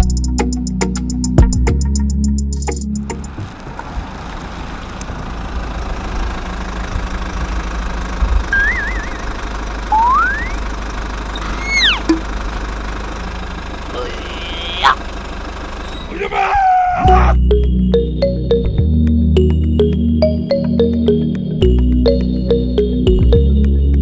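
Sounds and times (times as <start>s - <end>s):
small engine droning: 3.0s - 24.0s
whistling glides: 8.5s - 10.7s, 11.4s - 12.2s.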